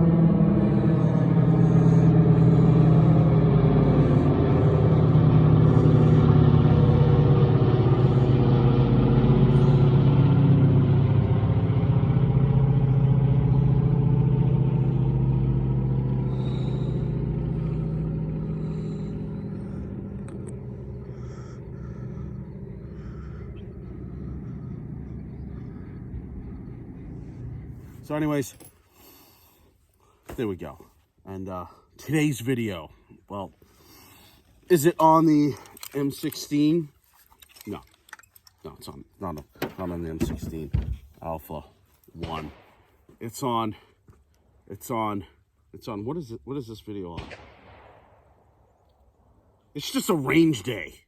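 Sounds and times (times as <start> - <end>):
vehicle engine running: 0.0 - 29.3.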